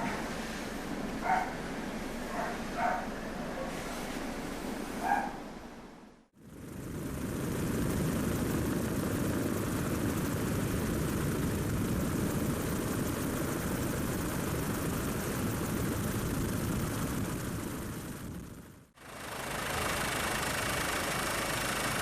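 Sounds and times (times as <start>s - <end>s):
helicopter engine and rotor: 6.4s - 22.0s.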